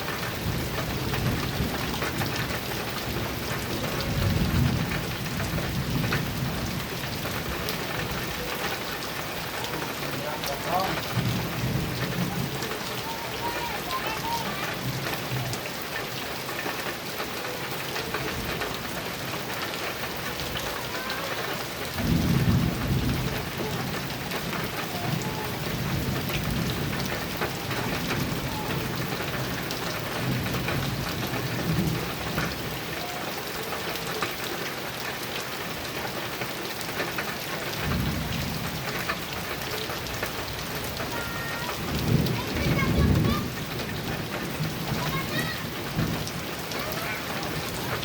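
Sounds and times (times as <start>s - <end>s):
rain on a metal roof: 0.0s - 48.0s
thunder rolling: 0.4s - 8.5s, 9.2s - 15.6s, 20.4s - 32.8s, 40.6s - 48.0s.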